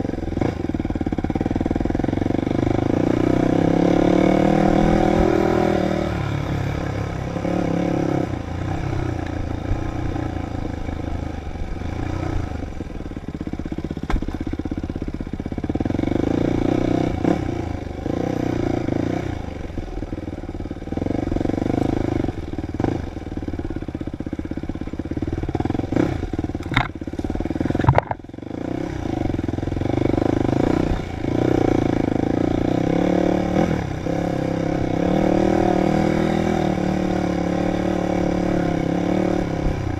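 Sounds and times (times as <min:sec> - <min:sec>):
dirt bike engine revving: 0:00.4 - 0:09.1, 0:25.4 - 0:39.9
sharp knocks and clatters: 0:26.6 - 0:28.3.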